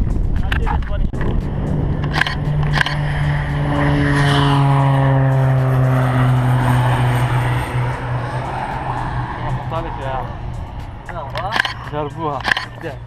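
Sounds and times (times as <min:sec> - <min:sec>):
propeller airplane flying past: 0:01.1 - 0:13.0.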